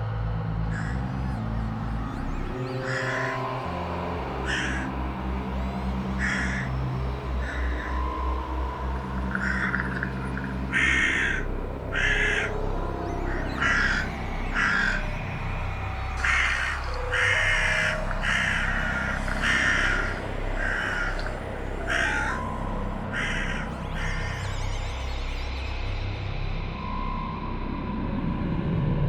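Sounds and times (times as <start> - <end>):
low pulsing synthesizer drone: 0.0 - 29.0
crow cawing: 0.7 - 1.6, 2.6 - 24.4.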